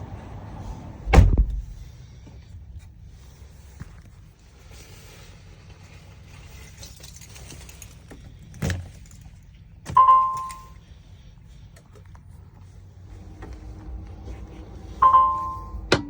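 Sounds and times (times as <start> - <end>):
thump: 1.1 - 1.8
short electronic tone: 15.0 - 15.9.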